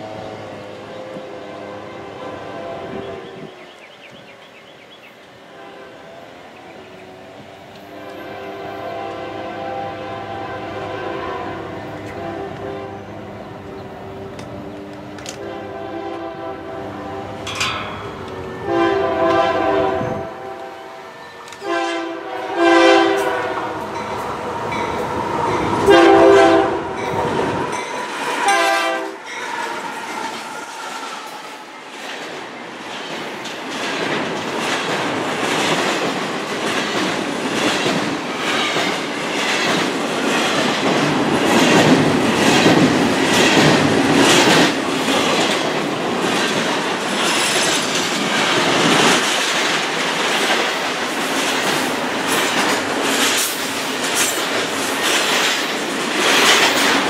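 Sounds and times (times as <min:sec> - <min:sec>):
locomotive horn: 0:00.0 - 0:03.5, 0:05.4 - 0:06.5, 0:07.7 - 0:13.6, 0:15.1 - 0:17.5, 0:18.4 - 0:24.2, 0:25.8 - 0:27.2, 0:28.0 - 0:30.4
train wheels clicking over rail joints: 0:14.1 - 0:15.7, 0:17.4 - 0:18.5, 0:29.4 - 0:57.0.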